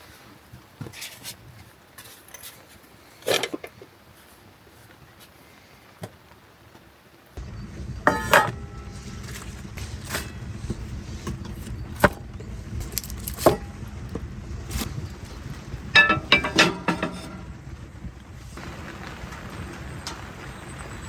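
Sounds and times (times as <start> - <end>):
steady low rumble: 7.4 - 20.0
knocks and clinks: 16.0 - 17.6.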